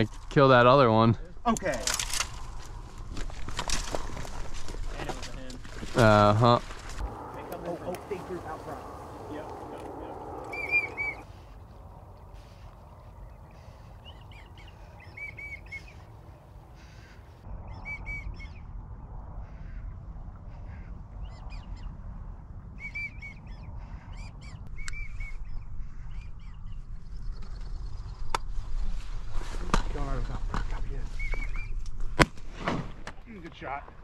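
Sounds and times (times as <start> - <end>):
wind rumble on microphone: 0.0 - 16.4, 17.4 - 32.2
duck whistling: 10.4 - 11.3, 13.6 - 16.0.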